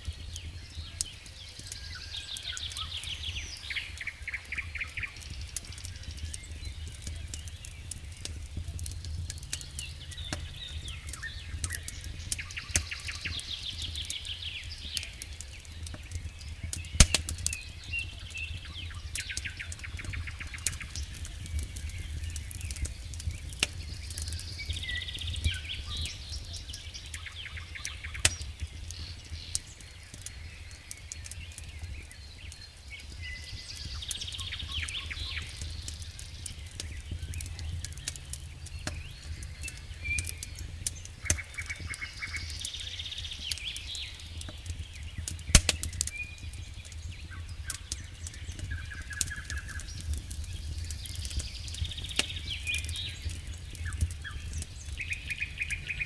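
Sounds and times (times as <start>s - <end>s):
campfire crackling and popping: 0.0s - 56.0s
songbird chirping: 0.0s - 56.0s
low steady rumble: 6.1s - 14.1s, 34.9s - 43.0s.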